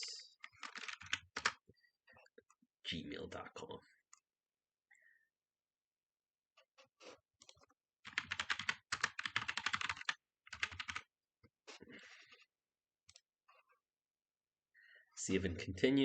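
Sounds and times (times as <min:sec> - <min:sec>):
typing on computer keyboard: 0:00.4 - 0:01.6, 0:08.0 - 0:11.1.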